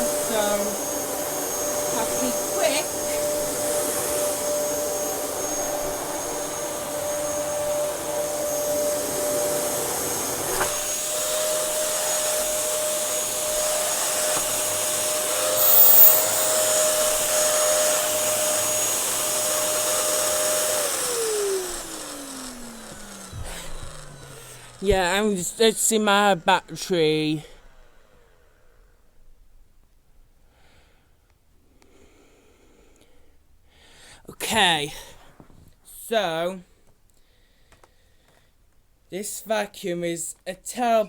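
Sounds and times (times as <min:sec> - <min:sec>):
vacuum cleaner running: 0:00.0 - 0:28.4.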